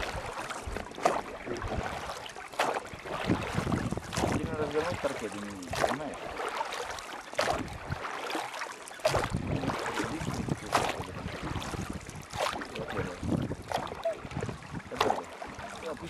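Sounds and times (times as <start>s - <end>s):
wind on microphone: 0.0s - 2.2s, 2.9s - 6.1s, 7.4s - 8.1s, 9.0s - 16.0s
flowing water rushing: 0.0s - 16.0s.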